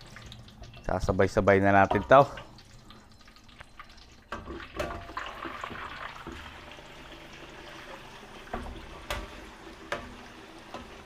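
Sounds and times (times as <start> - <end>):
meat sizzling in hot oil: 4.3 - 11.0.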